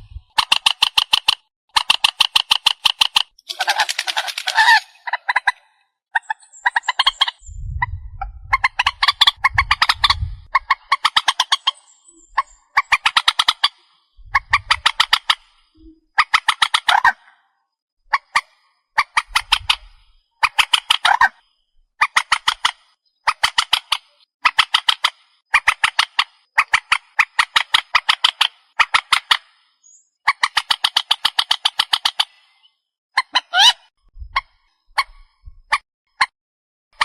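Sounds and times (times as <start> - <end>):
waterbird calling with clicking notes: 0.3 - 7.4, 8.5 - 17.3, 18.1 - 29.6, 30.2 - 36.3
low rumble: 7.4 - 8.6.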